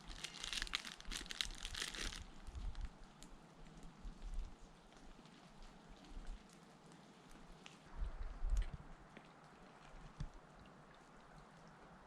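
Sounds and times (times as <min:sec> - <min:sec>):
plastic wrapper crinkling: 0:00.0 - 0:02.9.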